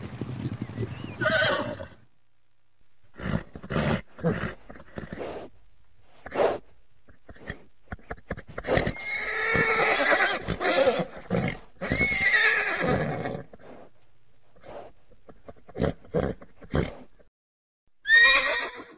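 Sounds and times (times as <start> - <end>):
horses whinnying: 1.2 - 2.0, 7.3 - 13.6, 18.0 - 18.9.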